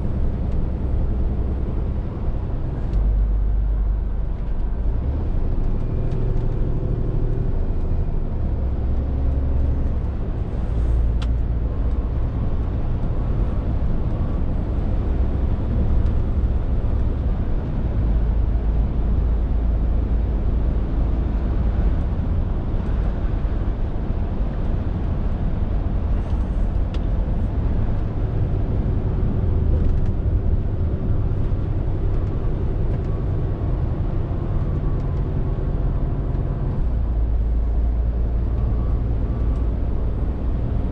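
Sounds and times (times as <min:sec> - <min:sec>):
lorry diesel engine drone: 0:00.0 - 0:40.9
tyre and road noise: 0:00.0 - 0:40.9.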